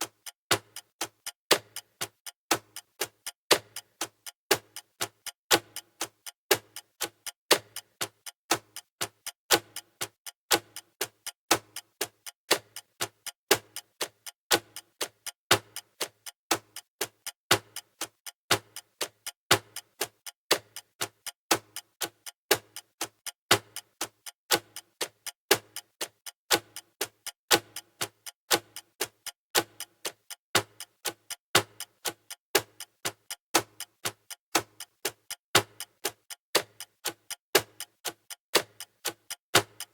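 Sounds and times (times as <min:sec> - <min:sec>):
countdown timer ticking: 0:00.0 - 0:39.9.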